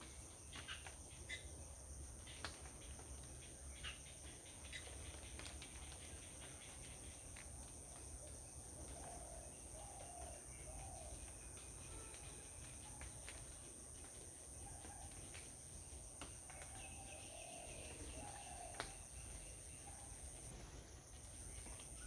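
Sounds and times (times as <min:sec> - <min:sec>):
soft bird calls: 0:16.5 - 0:20.7.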